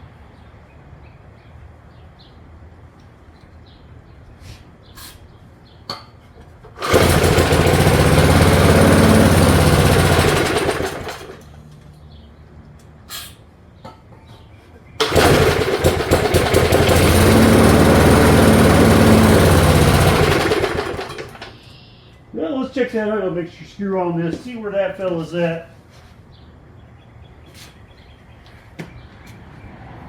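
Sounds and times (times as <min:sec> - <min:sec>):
small mower engine running: 0:06.6 - 0:11.6, 0:15.0 - 0:21.6.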